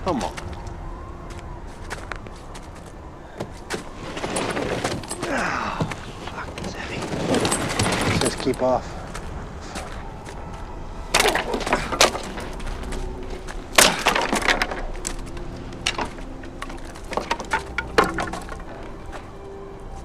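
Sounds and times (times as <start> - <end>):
faint low film score: 0.0 - 20.0
sharp cracks and knocks: 11.1 - 19.0.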